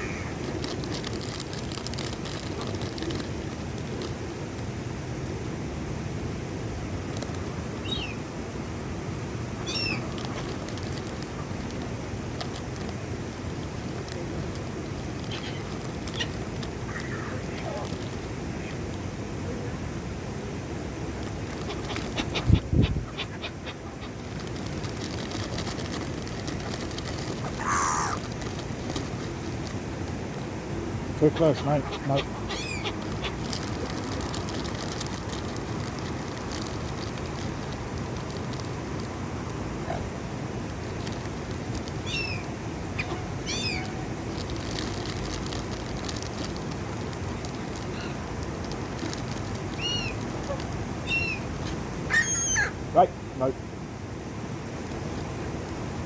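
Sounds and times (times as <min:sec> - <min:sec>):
gulls squawking: 0:00.0 - 0:00.4, 0:21.6 - 0:24.4, 0:27.4 - 0:28.2, 0:31.1 - 0:34.2, 0:42.0 - 0:44.0, 0:49.8 - 0:52.8
steady background noise: 0:00.0 - 0:56.0
harsh bird call: 0:27.6 - 0:28.2, 0:31.2 - 0:33.4, 0:52.1 - 0:52.8.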